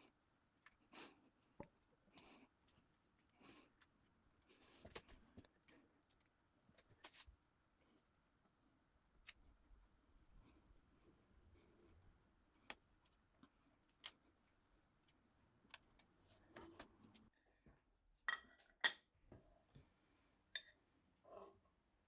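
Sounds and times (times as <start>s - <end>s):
kitchenware taps and clinks: 18.3s - 19.1s.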